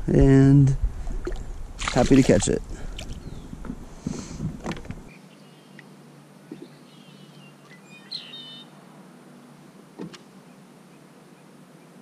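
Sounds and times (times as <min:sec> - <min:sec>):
bird chirping: 0:05.1 - 0:05.8, 0:06.5 - 0:08.7.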